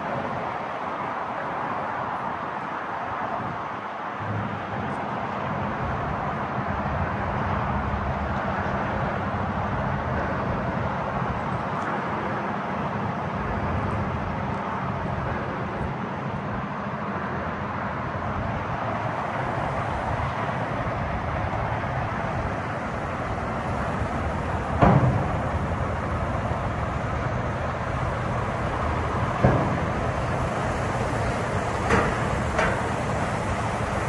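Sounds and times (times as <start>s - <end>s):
diesel truck engine running: 18.2s - 34.0s.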